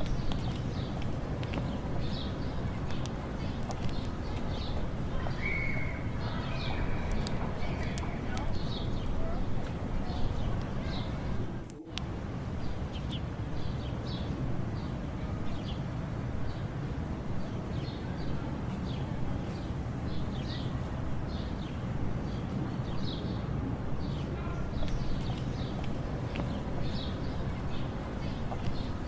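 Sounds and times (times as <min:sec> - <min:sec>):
small birds chirping: 0:00.0 - 0:11.3, 0:17.4 - 0:29.0.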